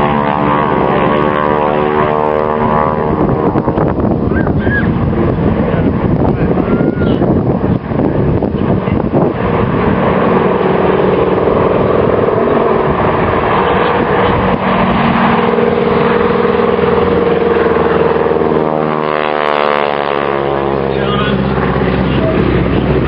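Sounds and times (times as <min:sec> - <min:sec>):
propeller aircraft engine droning: 0:00.0 - 0:23.0.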